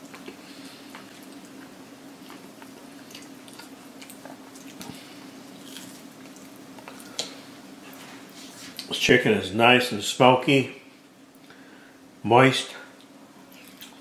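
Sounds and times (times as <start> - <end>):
person chewing food: 0.0 - 7.9, 13.0 - 14.0
low steady hum: 0.0 - 14.0.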